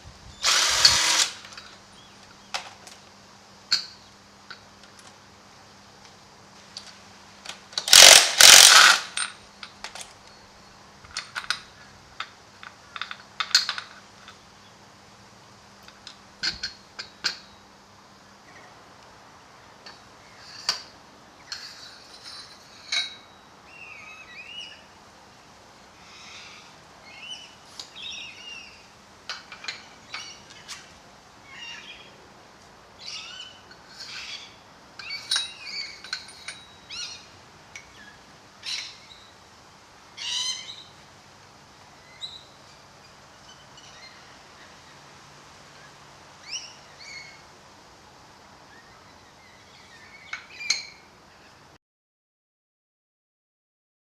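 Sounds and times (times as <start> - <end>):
birds chirping: 23.3 - 25.0, 26.0 - 29.0, 29.8 - 32.2, 33.0 - 39.4, 40.2 - 41.0, 45.8 - 47.5, 48.6 - 51.6.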